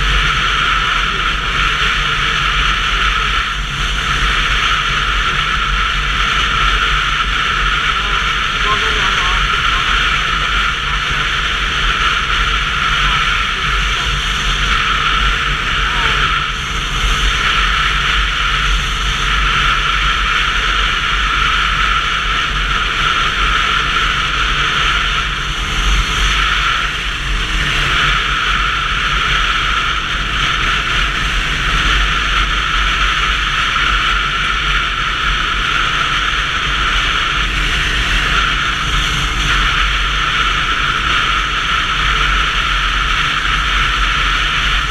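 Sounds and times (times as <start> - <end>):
wind and road noise: 0.0 - 44.9.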